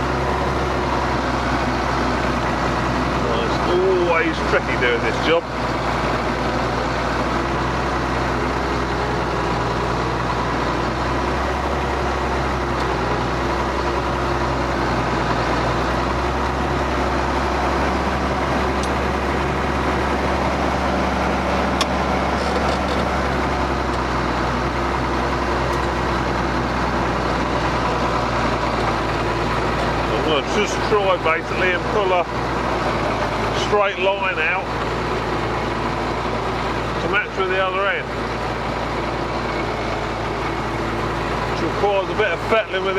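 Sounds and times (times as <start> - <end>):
tractor diesel engine under load: 0.0 - 42.9.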